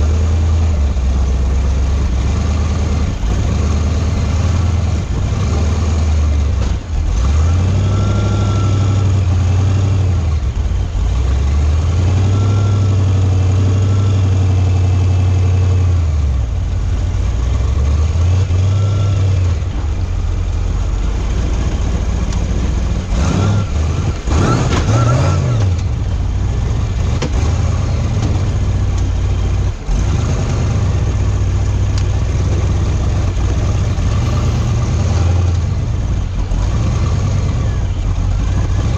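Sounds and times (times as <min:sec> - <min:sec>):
buggy engine revving: 0:00.0 - 0:38.9.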